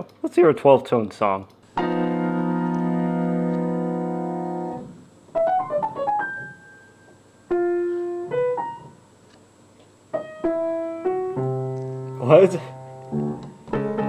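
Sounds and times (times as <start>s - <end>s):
atonal piano music: 1.8s - 9.0s, 10.2s - 14.0s.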